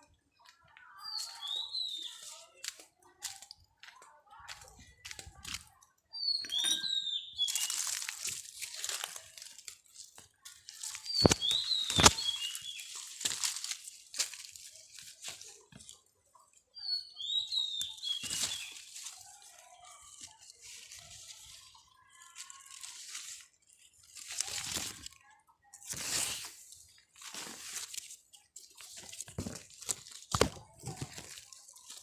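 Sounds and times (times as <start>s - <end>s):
bird chirps: 0.9s - 2.5s, 6.1s - 8.0s, 10.9s - 13.1s, 16.7s - 19.4s
leaves and stems rustling: 7.4s - 16.6s, 17.2s - 32.0s.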